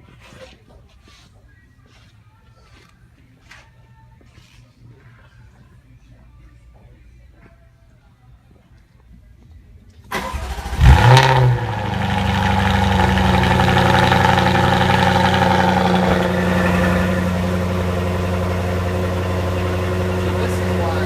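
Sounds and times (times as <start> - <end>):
car engine starting and idling: 10.1 - 21.0.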